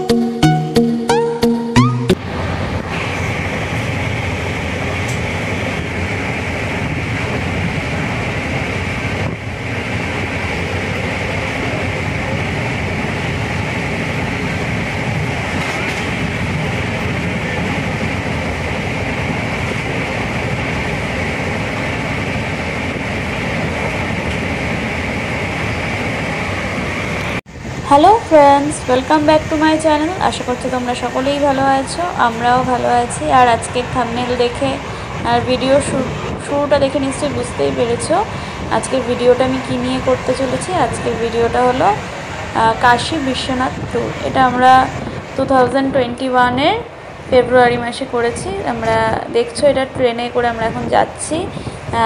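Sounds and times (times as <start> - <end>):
moving train running noise: 0.0 - 52.0.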